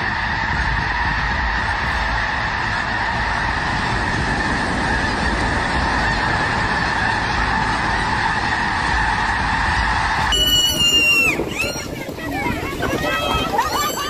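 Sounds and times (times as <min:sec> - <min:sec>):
geese honking chorus: 0:00.0 - 0:14.0
low rumble: 0:00.0 - 0:14.0.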